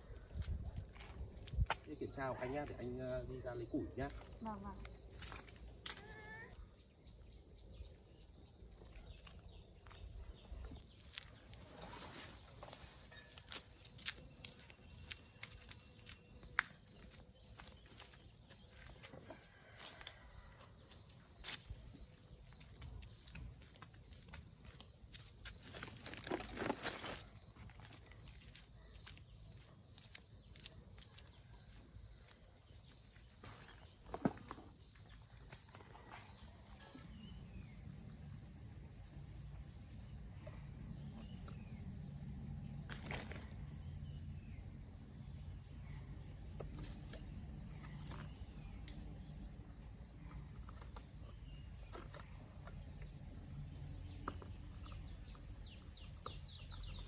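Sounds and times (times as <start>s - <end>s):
insects droning: 0.0s - 57.0s
bird chirps: 55.7s - 57.0s.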